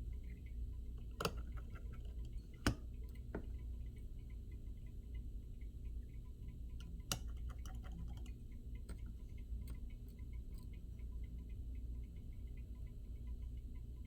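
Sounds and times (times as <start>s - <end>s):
low steady hum: 0.0s - 14.0s
small tool clicks and taps: 1.0s - 3.5s, 6.8s - 9.8s.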